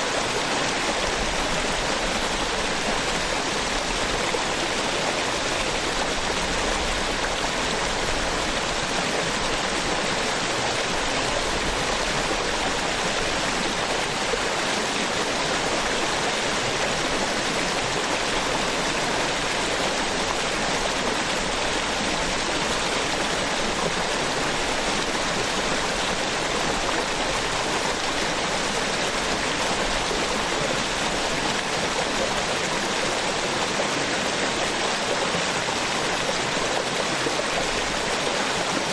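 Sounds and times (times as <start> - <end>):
small waterfall splashing: 0.0 - 38.9.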